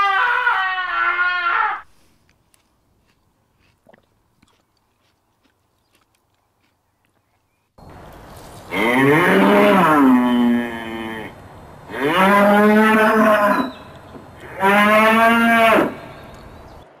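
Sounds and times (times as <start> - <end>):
cattle mooing: 8.7 - 13.8, 14.4 - 16.1.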